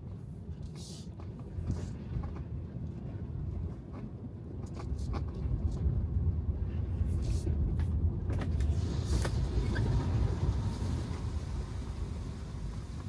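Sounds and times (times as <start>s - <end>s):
clicks and knocks from road: 0.6s - 6.0s, 7.1s - 11.4s
tyre and road noise: 4.6s - 13.0s.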